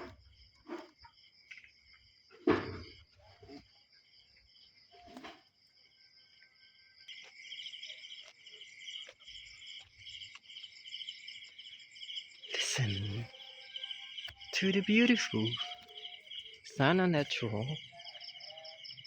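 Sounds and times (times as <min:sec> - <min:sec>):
crickets chirping: 0:00.0 - 0:19.0
loud pulsing insect trill: 0:05.7 - 0:19.0.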